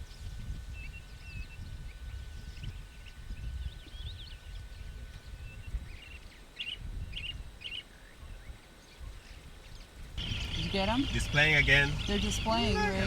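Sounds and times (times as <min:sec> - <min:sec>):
low rumbling background noise: 0:00.0 - 0:13.0
small birds chirping: 0:00.7 - 0:13.0.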